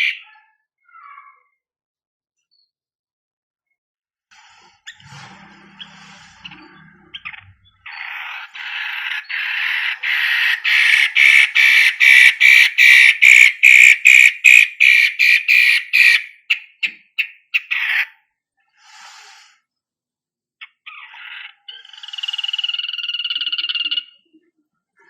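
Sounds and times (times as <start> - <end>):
bird harsh rasping chatter: 0.0 - 1.4, 4.8 - 18.2, 20.6 - 24.2.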